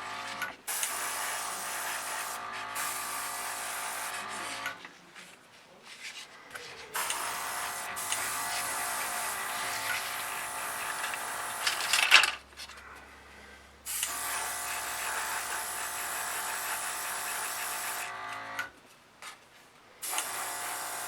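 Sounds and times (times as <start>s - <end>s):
small electric motor whirring: 0.0s - 4.8s, 7.0s - 12.2s, 13.9s - 18.7s, 20.0s - 21.0s.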